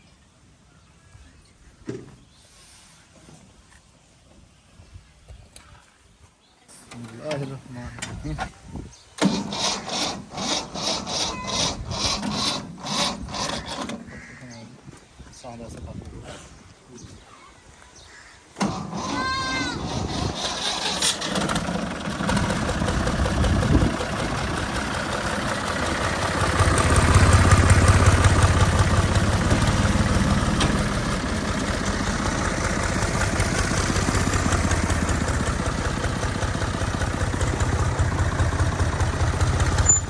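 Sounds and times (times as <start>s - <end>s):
tractor diesel engine running: 9.2s - 14.0s, 18.6s - 40.0s.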